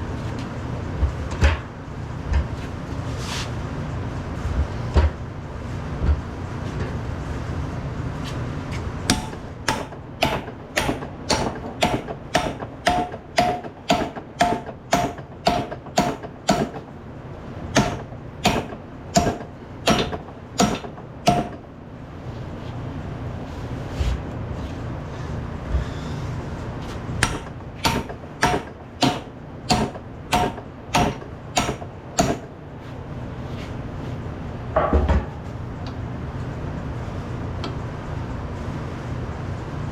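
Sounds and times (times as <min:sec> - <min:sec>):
low workshop noise: 0:00.0 - 0:39.9
hammer striking metal: 0:09.1 - 0:16.8, 0:17.7 - 0:21.6, 0:27.2 - 0:32.5.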